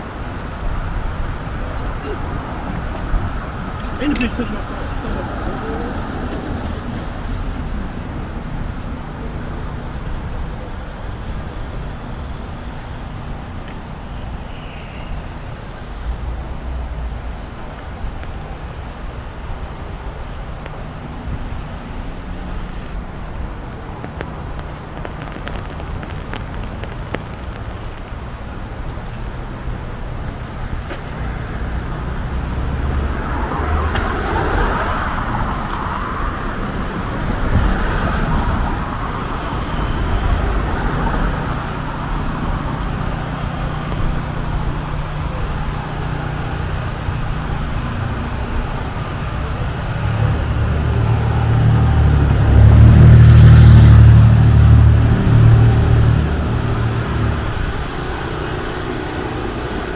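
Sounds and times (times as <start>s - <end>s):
traffic rumble: 0.0s - 59.9s
tyres hissing on wet road: 0.0s - 59.9s
high squeal: 14.1s - 17.6s.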